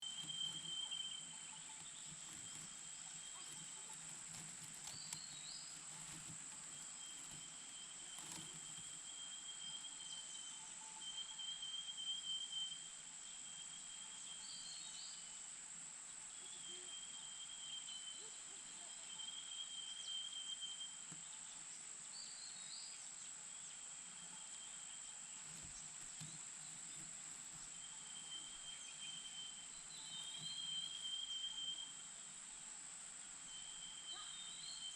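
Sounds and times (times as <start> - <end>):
thin high insect trill: 0.0 - 15.2, 23.6 - 32.6, 33.2 - 34.9
insects trilling drone: 0.0 - 34.9.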